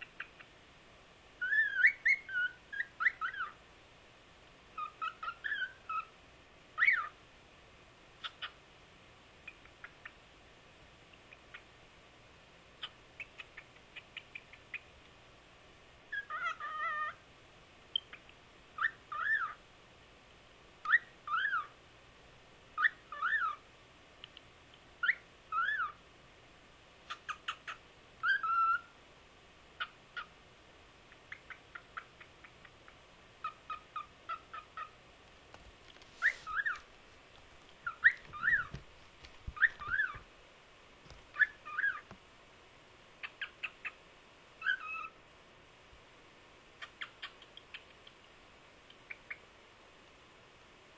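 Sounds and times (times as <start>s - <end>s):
cockatiel chirps and clicks: 0.0s - 0.5s, 1.4s - 3.6s, 4.8s - 6.1s, 8.2s - 8.6s, 9.4s - 10.2s, 11.1s - 11.7s, 12.8s - 14.9s, 16.1s - 17.2s, 17.9s - 19.6s, 20.8s - 21.7s, 22.8s - 23.6s, 24.2s - 26.0s, 27.1s - 28.9s, 31.1s - 34.9s, 36.2s - 36.9s, 37.7s - 40.2s, 41.1s - 42.2s, 43.2s - 44.0s, 44.6s - 45.2s, 46.8s - 49.5s
cockatiel whistling: 1.4s - 3.6s, 4.8s - 6.1s, 6.8s - 7.2s, 16.1s - 17.2s, 18.8s - 19.6s, 20.8s - 21.7s, 22.8s - 23.6s, 25.0s - 26.0s, 27.1s - 28.9s, 36.2s - 36.8s, 37.8s - 38.8s, 39.6s - 40.2s, 41.3s - 42.1s, 44.6s - 45.2s.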